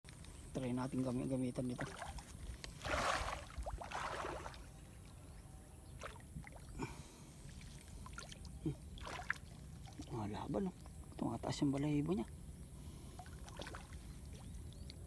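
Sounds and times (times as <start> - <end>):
water splashing: 1.7 - 4.7, 7.5 - 10.2, 13.2 - 14.5.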